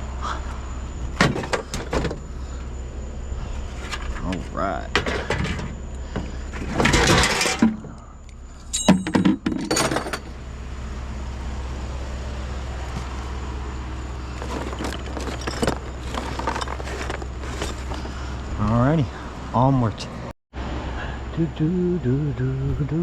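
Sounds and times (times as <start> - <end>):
low hum: 0.0 - 23.0
scrap metal clattering: 3.7 - 8.0, 14.3 - 18.2
ringing metal clink: 8.6 - 10.2.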